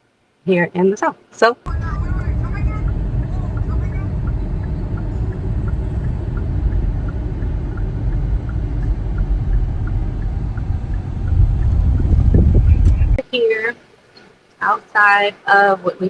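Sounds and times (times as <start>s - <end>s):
car road and engine rumble: 1.7s - 13.2s.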